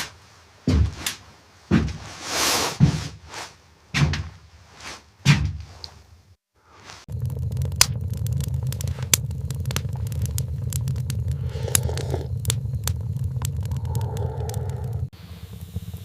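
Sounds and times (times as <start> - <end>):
dull thuds: 0.7 - 2.2, 2.8 - 3.3, 3.9 - 4.5, 5.2 - 5.8
low rumble with crackling: 6.6 - 16.0.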